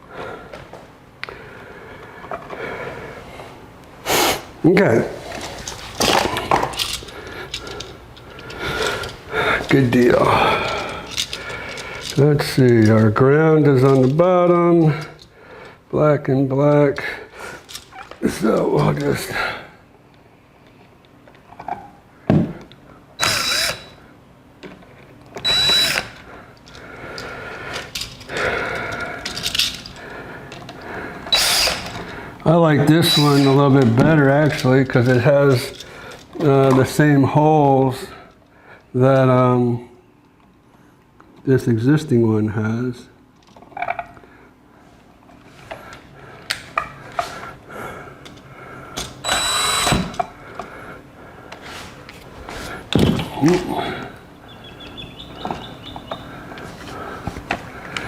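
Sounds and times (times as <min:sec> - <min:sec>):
cordless drill whining: 0:23.2 - 0:24.0, 0:25.4 - 0:26.2, 0:31.3 - 0:32.1, 0:33.0 - 0:33.7, 0:49.2 - 0:50.2.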